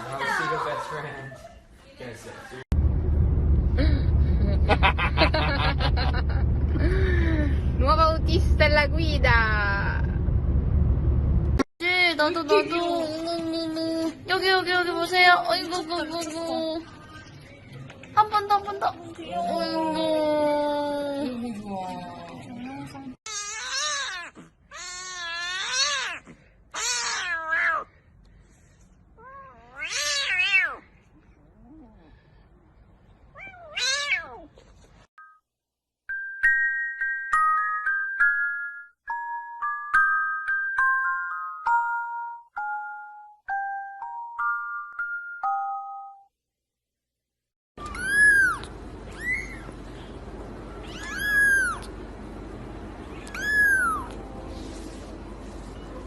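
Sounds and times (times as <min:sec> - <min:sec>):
cat yowling: 0:23.3 - 0:27.9, 0:29.2 - 0:30.8, 0:33.4 - 0:34.5, 0:47.8 - 0:49.8, 0:50.7 - 0:51.9, 0:53.1 - 0:54.2.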